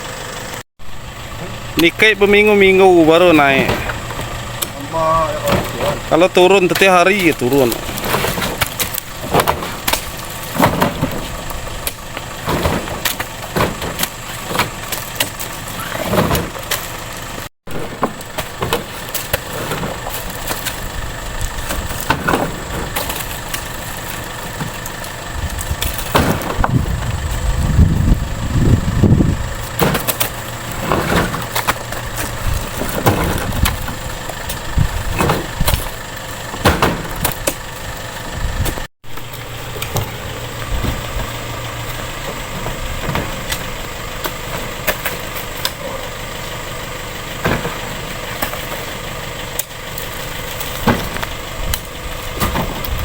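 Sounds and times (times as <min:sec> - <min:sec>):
engine running steadily: 0:00.0 - 0:53.0
knocks and rattles: 0:06.7 - 0:45.8.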